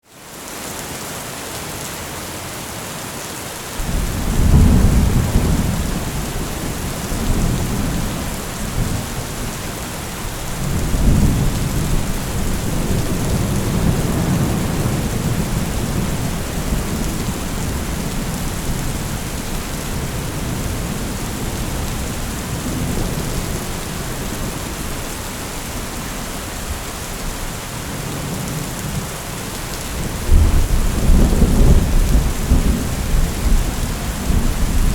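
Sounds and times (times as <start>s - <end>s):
heavy rain: 0.0s - 34.9s
rolling thunder: 3.8s - 25.1s, 29.9s - 34.9s.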